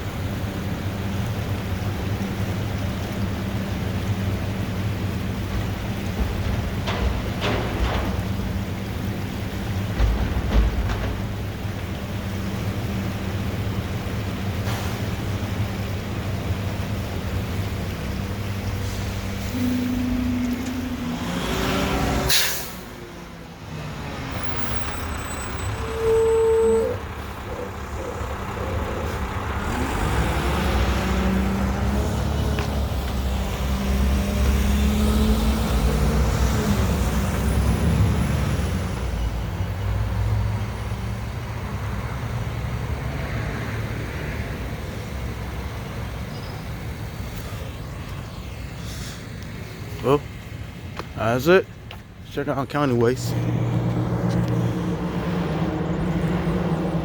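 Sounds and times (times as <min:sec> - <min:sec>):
garbage truck diesel engine: 0:00.0 - 0:57.0
air brake hiss: 0:22.3 - 0:22.9, 0:48.8 - 0:49.3.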